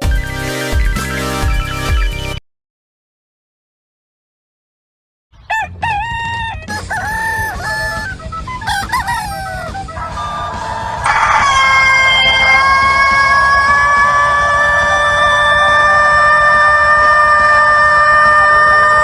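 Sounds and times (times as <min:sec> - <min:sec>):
rooster crowing: 0:05.5 - 0:19.0.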